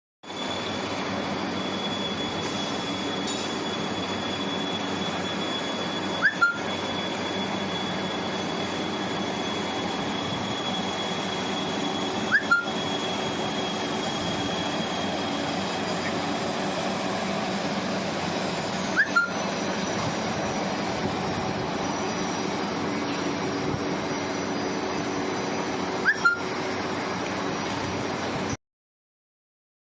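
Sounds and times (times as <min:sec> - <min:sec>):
lathe mechanical hum: 0:00.3 - 0:28.6
double click with squeak: 0:03.2 - 0:03.6.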